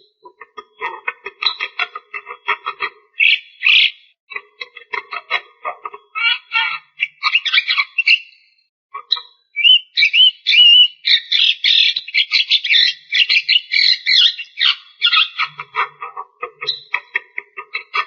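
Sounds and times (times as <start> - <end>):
bird chattering song: 0.0 - 18.0
bird slurred whistles: 9.6 - 11.0.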